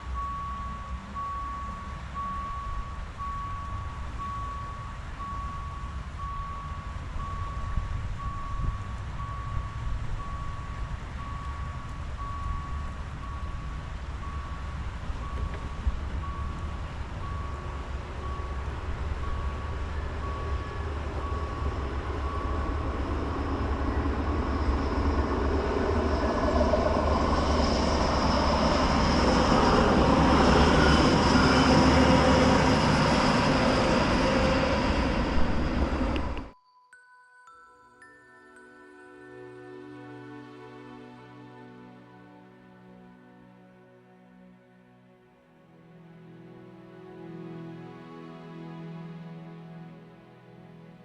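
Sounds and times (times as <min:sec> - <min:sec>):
electronic warning beep: 0:00.0 - 0:36.2
vehicle rumble and whine: 0:00.0 - 0:36.6.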